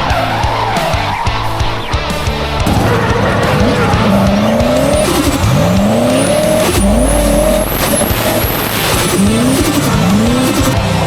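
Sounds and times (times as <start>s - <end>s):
car engine revving hard: 2.6s - 11.0s.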